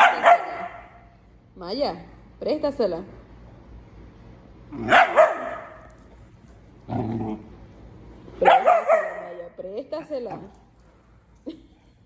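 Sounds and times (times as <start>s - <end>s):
dog barking: 0.0s - 1.0s, 4.8s - 5.9s, 8.4s - 9.4s.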